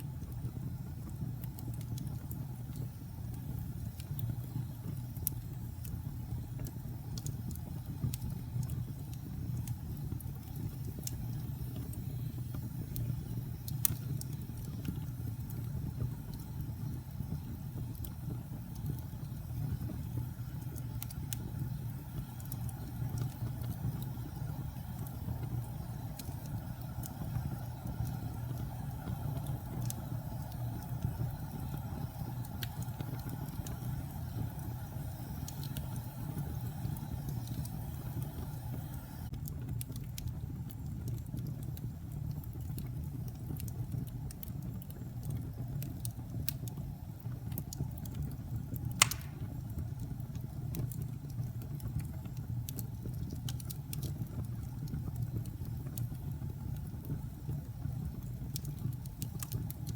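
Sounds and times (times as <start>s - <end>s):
fire crackling: 0.0s - 59.9s
low rumble of flames: 0.0s - 59.9s
sharp loud pop: 49.0s - 49.5s.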